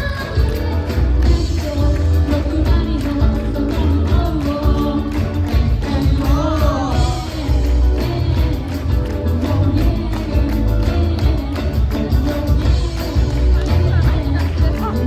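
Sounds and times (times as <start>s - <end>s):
live pop-rock band: 0.0s - 15.0s
person singing: 0.0s - 15.0s.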